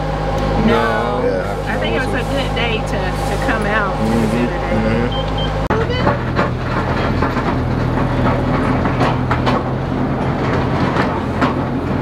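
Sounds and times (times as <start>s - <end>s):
low engine hum: 0.0s - 12.0s
wheels clacking on track: 5.7s - 12.0s.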